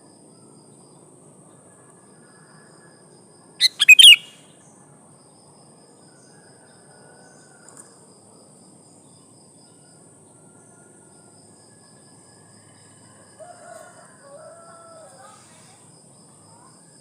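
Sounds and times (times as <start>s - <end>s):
faint distant bird notes: 3.6s - 4.4s
insects trilling: 3.6s - 4.4s
small tick: 7.6s - 7.9s.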